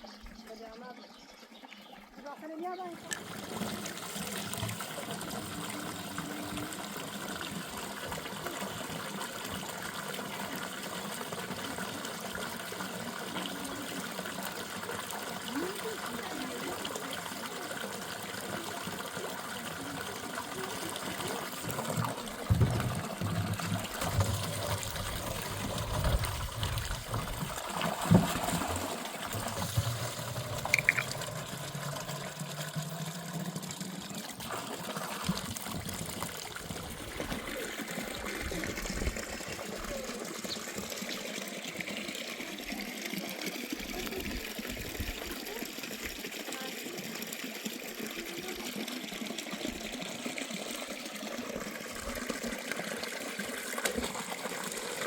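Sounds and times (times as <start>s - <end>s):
running water trickling: 0.0s - 55.0s
dull knocks and bumps: 22.4s - 24.9s.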